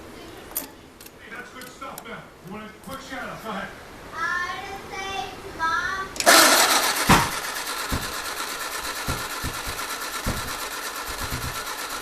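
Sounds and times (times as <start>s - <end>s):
engine coughing and firing: 6.2s - 12.0s
starter motor cranking engine: 6.2s - 12.0s.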